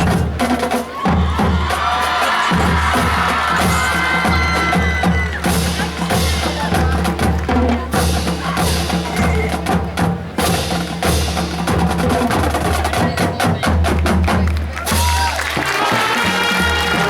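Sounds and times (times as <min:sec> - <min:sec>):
marching band playing: 0:00.0 - 0:17.0
rapid drumline strikes: 0:00.0 - 0:17.0
low brass bass line: 0:15.7 - 0:17.0.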